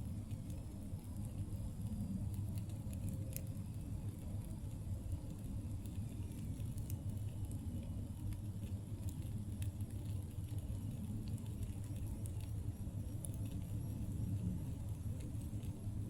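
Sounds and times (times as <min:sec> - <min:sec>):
campfire crackling and popping: 0:00.0 - 0:16.0
low rumble of fire: 0:00.0 - 0:16.0.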